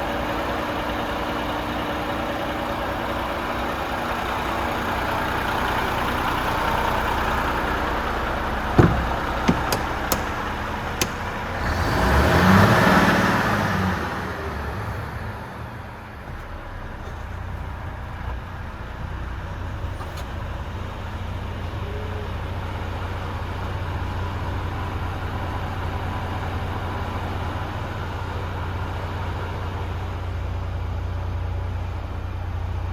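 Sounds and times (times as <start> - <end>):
diesel engine idling: 0.0 - 32.9
sharp clicks: 8.8 - 11.4.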